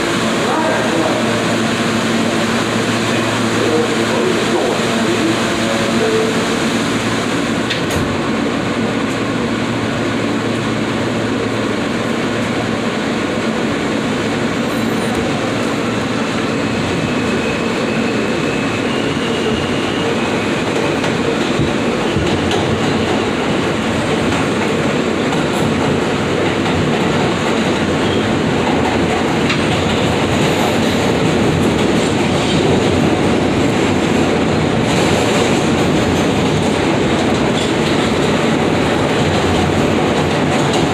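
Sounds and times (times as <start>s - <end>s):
train wheels on rails: 0.0s - 40.9s.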